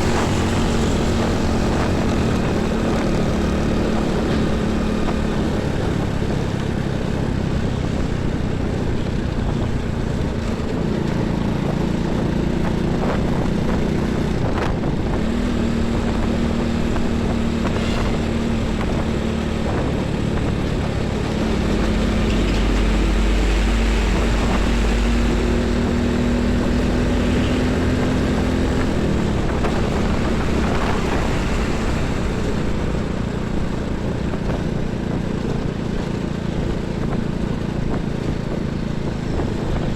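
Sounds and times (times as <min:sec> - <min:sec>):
heavy vehicle deep rumble: 0:00.0 - 0:39.9
truck and bus engines droning: 0:00.0 - 0:39.9
tyre and road noise: 0:00.0 - 0:39.9.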